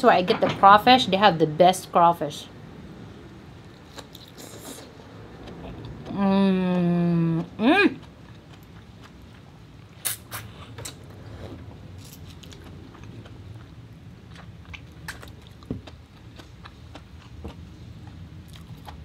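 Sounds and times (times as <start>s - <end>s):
chewing and mouth sounds: 3.8s - 11.1s, 12.0s - 19.0s.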